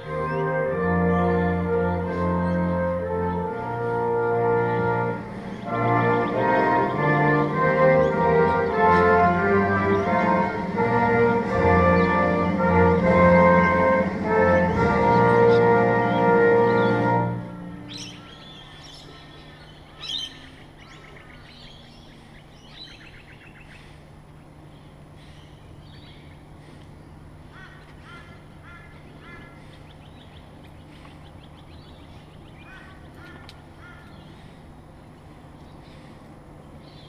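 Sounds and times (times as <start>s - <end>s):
steady low hum: 0.0s - 37.0s
birds chirping and whistling: 4.6s - 24.1s, 24.7s - 26.5s, 27.8s - 34.6s, 35.6s - 37.0s.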